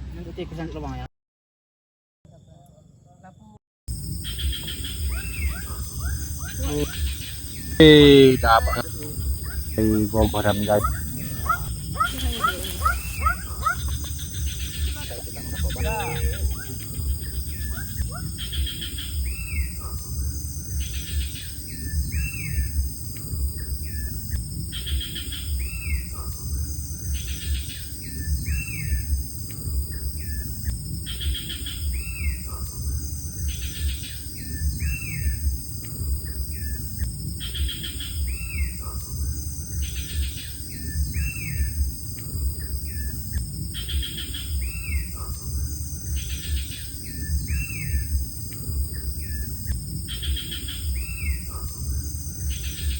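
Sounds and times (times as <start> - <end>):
steady low rumble: 3.9 - 40.1, 40.8 - 52.9
bird chirps and whistles: 10.7 - 15.0.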